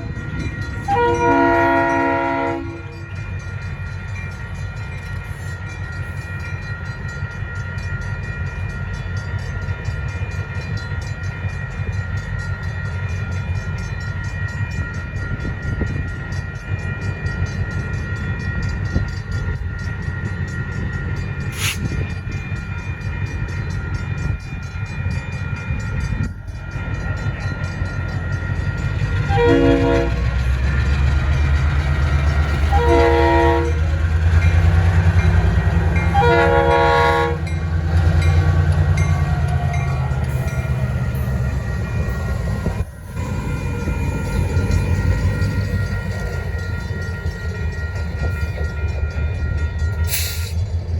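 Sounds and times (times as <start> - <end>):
crossing bell ringing: 0.0 - 50.9
diesel locomotive rumble: 0.0 - 50.9
locomotive horn: 0.8 - 3.0, 29.2 - 30.5, 32.4 - 40.2.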